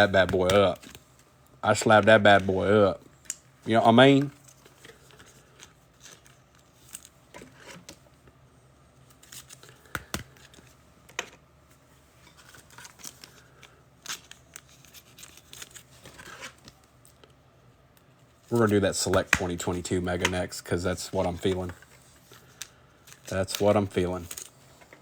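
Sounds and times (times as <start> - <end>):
card wrappers crinkling and tearing: 3.3 - 7.2, 9.1 - 10.7, 12.4 - 17.2, 21.2 - 24.7.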